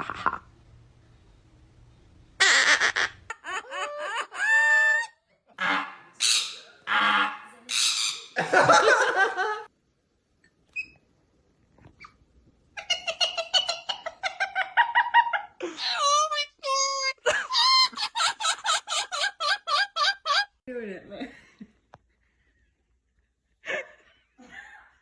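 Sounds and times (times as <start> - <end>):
parrot squawking: 2.4 - 8.4, 15.7 - 20.6
parrot imitating laughter: 2.4 - 8.8, 12.8 - 20.6.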